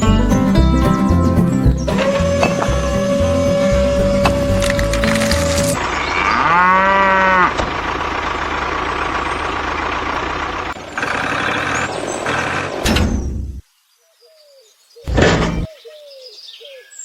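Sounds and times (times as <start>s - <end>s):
music: 0.0s - 5.8s
cow mooing: 5.8s - 7.6s.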